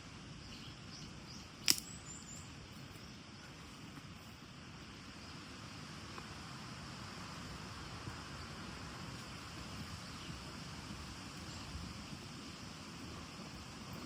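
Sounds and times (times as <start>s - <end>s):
outdoor background hiss: 0.0s - 14.0s
sharp click: 1.6s - 2.0s.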